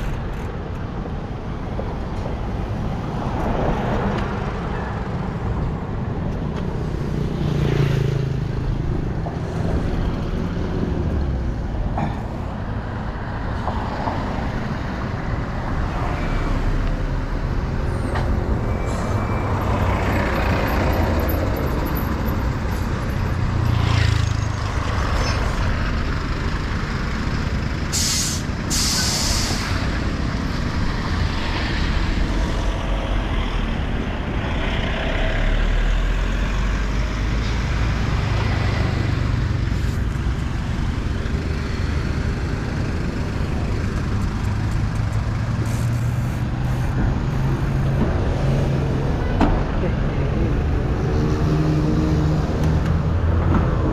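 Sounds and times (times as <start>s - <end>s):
low rumble of road noise: 0.0s - 53.9s
trucks and cars passing: 0.0s - 53.9s
short sharp hisses: 27.9s - 29.8s.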